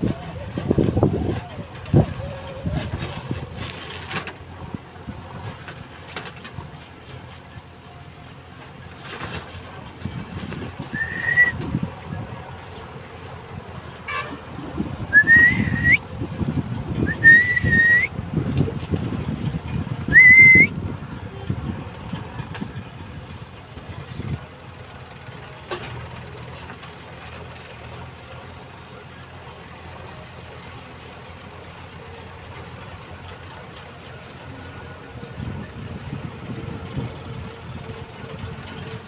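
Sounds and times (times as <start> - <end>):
heavy machinery engine running: 0.0 - 39.0
wavering high whistle: 10.9 - 11.6, 15.1 - 16.0, 17.1 - 18.1, 20.1 - 20.8.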